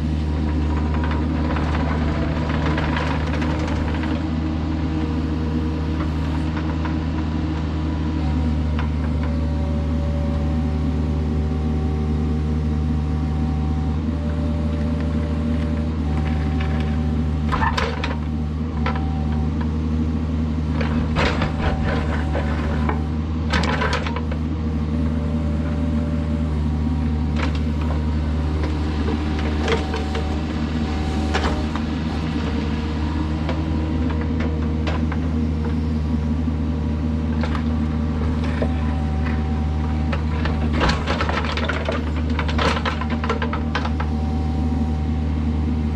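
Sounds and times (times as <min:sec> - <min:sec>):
diesel engine running: 0:00.0 - 0:45.9
hydraulic whine: 0:20.8 - 0:45.9.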